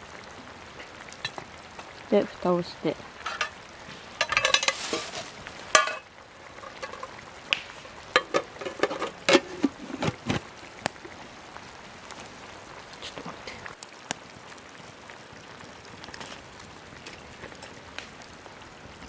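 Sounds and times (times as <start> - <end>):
campfire sizzling: 0.0 - 19.0
metal cookware clattering: 3.2 - 3.6, 4.2 - 7.2, 7.8 - 10.4.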